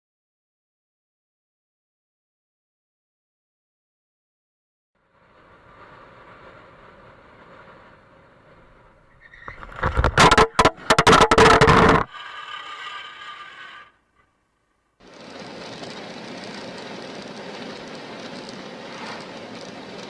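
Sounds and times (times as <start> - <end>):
scraping and clatter: 9.2 - 14.0, 15.0 - 20.0
car interior running noise: 15.0 - 20.0.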